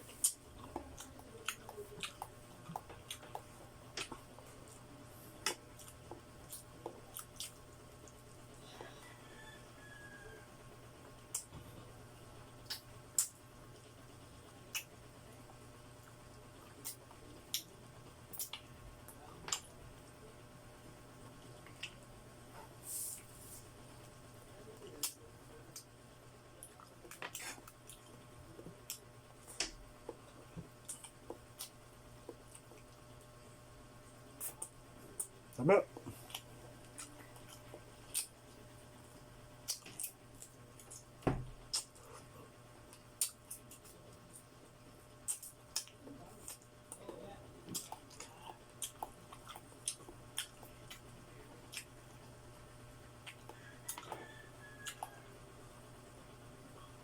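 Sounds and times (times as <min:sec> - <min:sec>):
wet chewing smacks and clicks: 0:05.5 - 0:08.4, 0:12.6 - 0:13.9, 0:14.7 - 0:15.0, 0:16.0 - 0:17.7, 0:18.3 - 0:19.7, 0:21.6 - 0:22.0, 0:36.0 - 0:38.6, 0:39.6 - 0:41.1, 0:41.7 - 0:42.2, 0:42.9 - 0:44.5, 0:45.2 - 0:47.1, 0:47.7 - 0:52.3, 0:53.2 - 0:54.2, 0:54.8 - 0:55.2.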